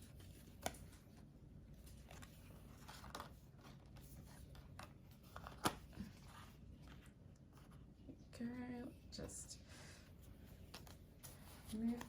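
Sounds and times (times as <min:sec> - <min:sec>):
cards rustling: 0:00.0 - 0:07.9, 0:10.3 - 0:12.0.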